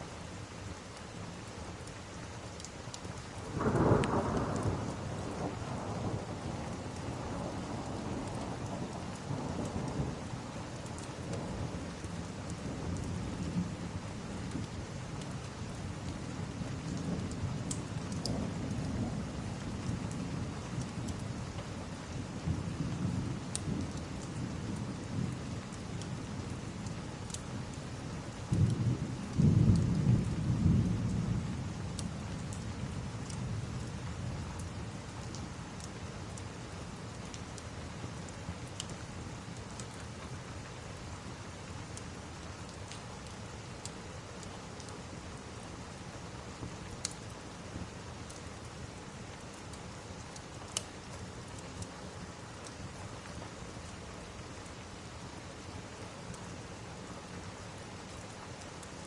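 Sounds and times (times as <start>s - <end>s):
heavy rain: 0.0s - 59.0s
rolling thunder rumble: 3.5s - 10.4s, 28.2s - 34.6s
faint crackles: 32.0s - 45.2s, 45.9s - 54.8s.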